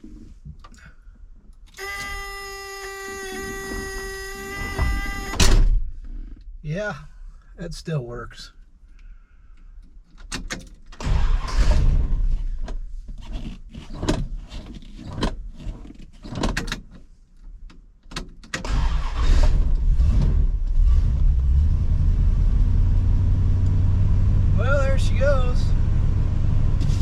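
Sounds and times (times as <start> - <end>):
engine cranking: 18.6 - 20.4
engine revving and idling: 19.0 - 27.0.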